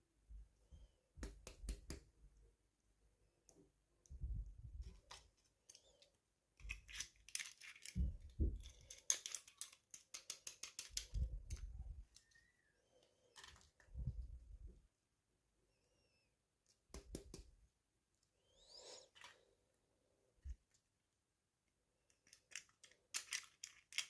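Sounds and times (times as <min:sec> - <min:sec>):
plastic toy pieces clicking: 0:06.6 - 0:11.6, 0:22.1 - 0:24.0.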